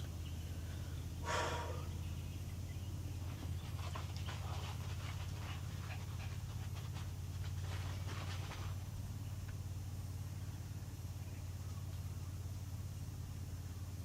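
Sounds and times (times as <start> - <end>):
steady low hum: 0.0 - 14.0
dog panting: 3.4 - 8.7.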